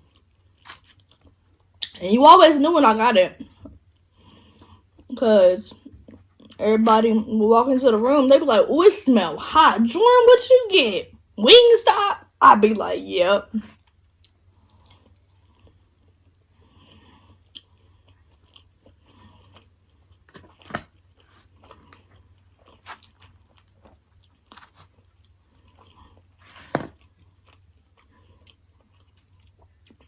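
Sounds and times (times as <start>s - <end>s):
person chewing food: 0.0s - 1.9s, 3.4s - 5.1s, 5.8s - 6.6s, 13.7s - 30.0s.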